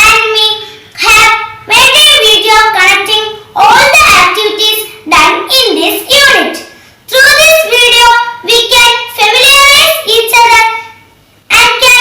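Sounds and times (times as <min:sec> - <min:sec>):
child singing: 0:00.0 - 0:10.9, 0:11.5 - 0:12.0.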